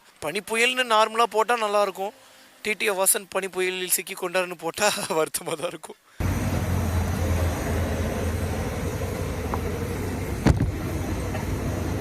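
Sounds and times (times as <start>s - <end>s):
vehicle running hum: 6.2s - 12.0s.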